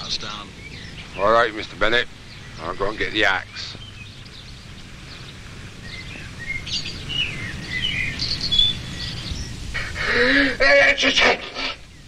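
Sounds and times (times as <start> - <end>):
birds chirping: 0.0 - 12.0
low background rumble: 0.0 - 12.0.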